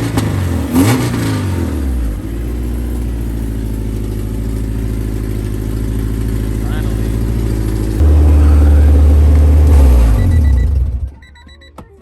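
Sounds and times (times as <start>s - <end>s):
car engine running: 0.0s - 11.8s
faint electronic beeps: 10.0s - 12.0s.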